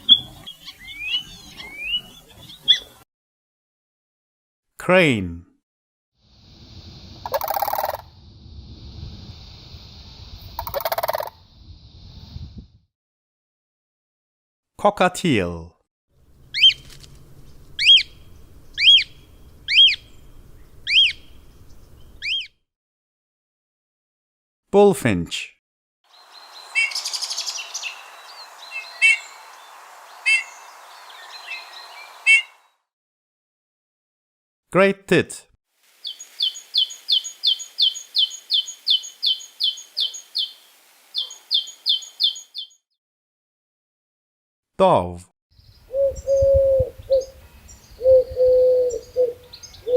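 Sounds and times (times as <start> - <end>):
cockatiel whistled calls: 0.1 - 2.8, 26.7 - 29.4, 30.2 - 32.5
bird singing high notes: 26.1 - 32.7.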